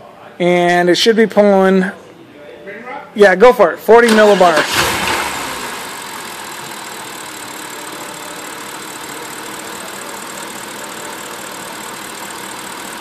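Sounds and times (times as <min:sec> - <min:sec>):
engine idling roughly: 0:04.6 - 0:13.0.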